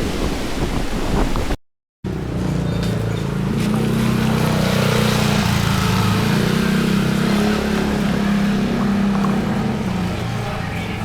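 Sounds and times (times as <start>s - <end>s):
wind: 0.0s - 11.0s
boat engine running: 2.2s - 11.0s
rushing water: 3.3s - 11.0s.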